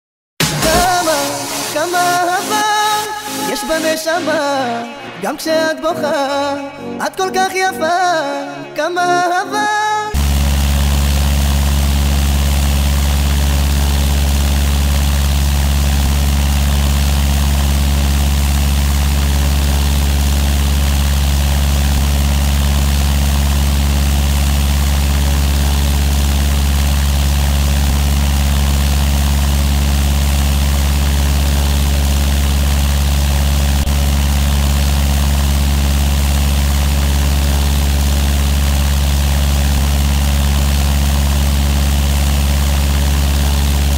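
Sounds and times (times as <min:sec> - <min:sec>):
propeller plane engine drone: 0:10.2 - 0:43.9.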